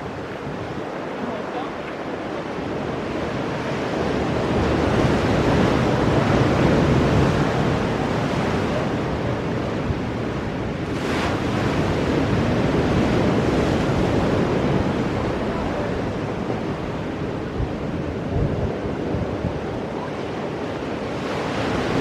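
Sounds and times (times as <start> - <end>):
surf breaking on rocks: 10.8 - 16.2.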